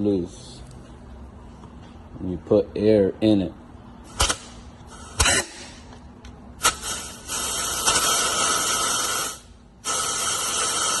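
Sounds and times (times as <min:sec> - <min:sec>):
compressed air hissing: 0:06.6 - 0:11.0.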